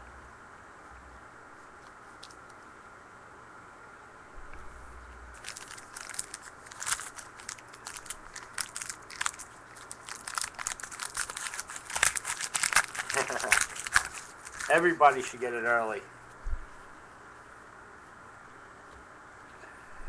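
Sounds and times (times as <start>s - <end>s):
wrappers being torn and crumpled: 5.4s - 15.4s.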